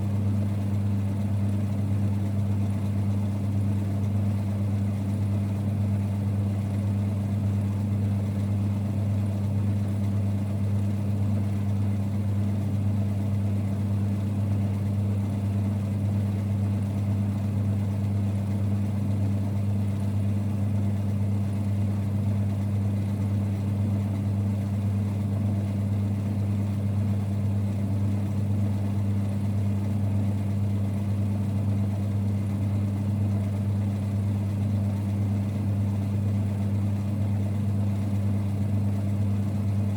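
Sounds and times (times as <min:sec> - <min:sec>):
lathe running with low hum: 0:00.0 - 0:39.9.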